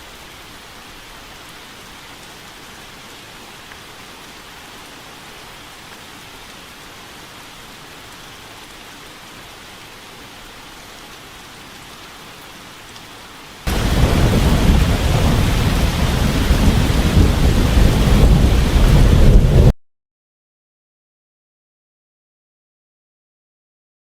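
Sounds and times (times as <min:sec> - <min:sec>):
heavy rain: 0:00.0 - 0:19.7
steady rain hiss: 0:00.0 - 0:19.7
deep rumbling thunder: 0:13.7 - 0:19.7.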